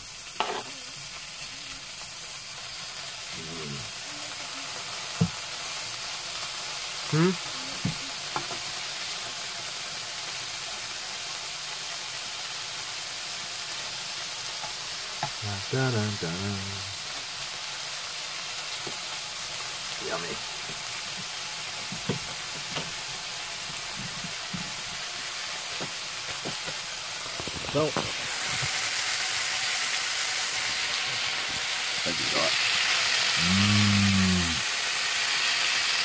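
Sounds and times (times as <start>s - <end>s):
food sizzling in a pan: 0.0s - 36.0s
person murmuring: 3.4s - 4.7s, 7.1s - 8.2s, 33.4s - 34.6s.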